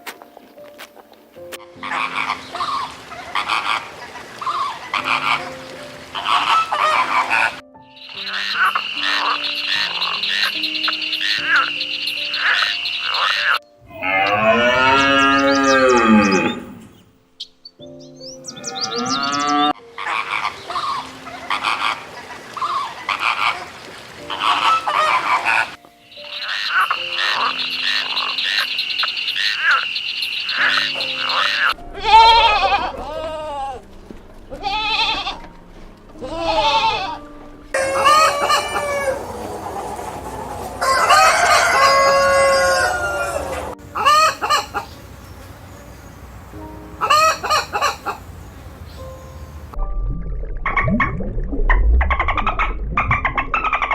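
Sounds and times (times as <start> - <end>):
chickens clucking: 0.1 - 14.0, 19.0 - 28.8, 36.2 - 49.4, 52.1 - 53.9
rapid croaking calls: 1.7 - 17.0, 18.5 - 33.3, 43.4 - 45.1
roosters crowing: 13.2 - 16.9, 30.7 - 33.8, 36.6 - 45.0, 47.0 - 48.2.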